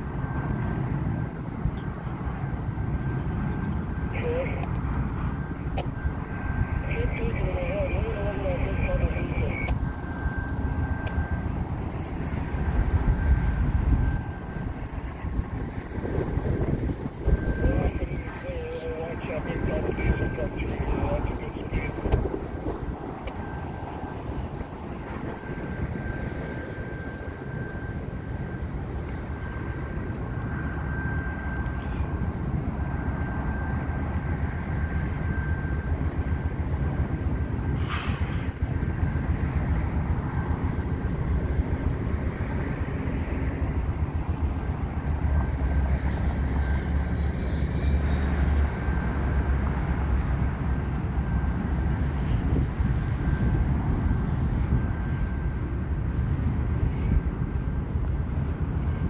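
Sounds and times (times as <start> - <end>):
thin high whine: 3.0 - 33.6.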